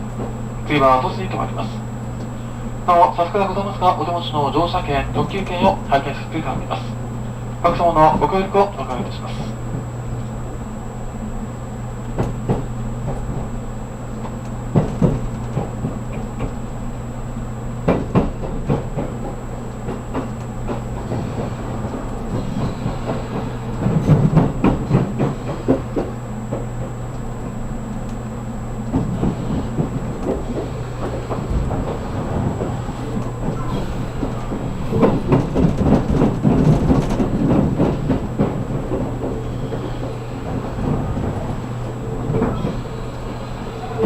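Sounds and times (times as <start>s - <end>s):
train interior rumble: 0.0s - 44.0s
wheels clicking over rail joints: 28.8s - 44.0s.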